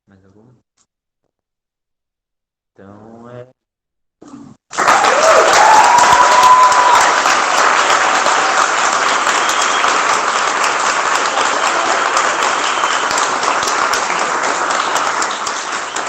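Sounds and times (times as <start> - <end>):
audience applauding: 4.7 - 16.0
person whooping: 4.8 - 7.3.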